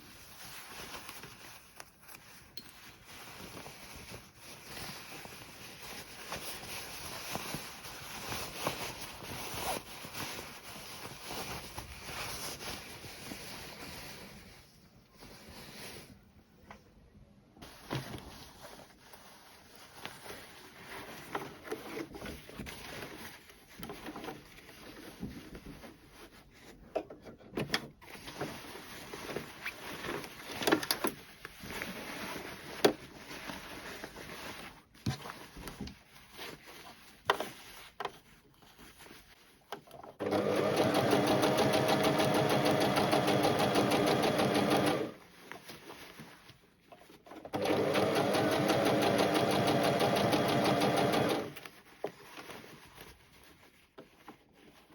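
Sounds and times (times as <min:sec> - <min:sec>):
rustling: 0:00.0 - 0:16.8, 0:17.6 - 0:54.9
electric sewing machine stitching: 0:40.2 - 0:45.2, 0:47.5 - 0:51.6.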